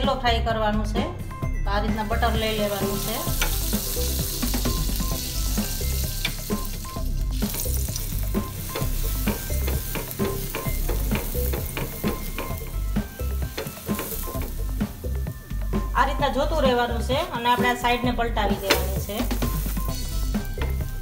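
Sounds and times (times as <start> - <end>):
faint background music: 0.0 - 21.0
butter sizzling and popping: 2.4 - 16.0, 18.6 - 21.0.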